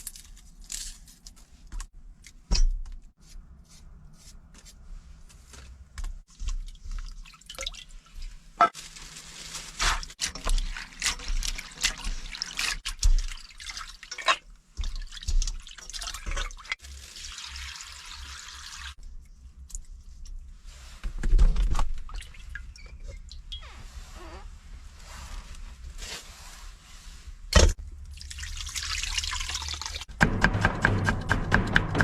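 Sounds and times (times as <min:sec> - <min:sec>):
water pouring and splashing: 0:06.3 - 0:19.0, 0:28.0 - 0:30.1
water dripping: 0:28.0 - 0:30.1.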